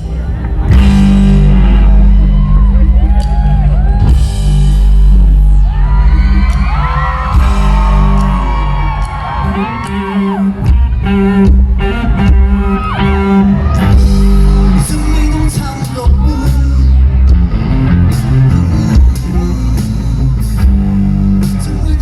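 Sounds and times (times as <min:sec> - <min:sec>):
live rock band: 0:00.0 - 0:22.0
crowd whooping: 0:00.7 - 0:19.0
person singing: 0:09.4 - 0:17.3, 0:18.0 - 0:22.0.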